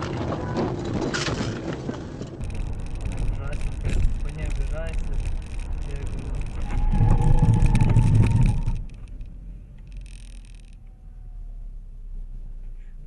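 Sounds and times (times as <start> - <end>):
car road and engine noise: 0.4 - 13.0.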